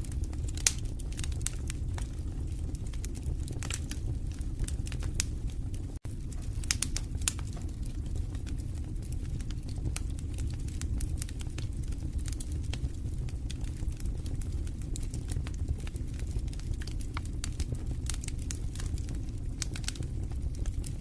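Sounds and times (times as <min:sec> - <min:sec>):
low rumble of flames: 0:00.0 - 0:21.0
wood fire crackling: 0:00.0 - 0:21.0.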